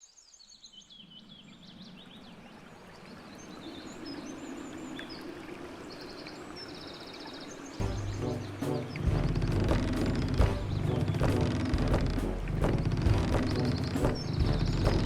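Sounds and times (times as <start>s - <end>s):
birds chirping and trilling: 0.0s - 15.0s
steady rushing background noise: 7.8s - 15.0s.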